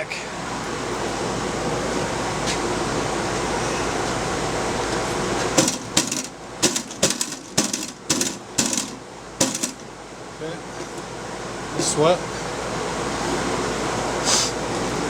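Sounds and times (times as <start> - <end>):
air conditioner noise: 0.0 - 15.0
sharp knocks on metal case: 5.6 - 9.9.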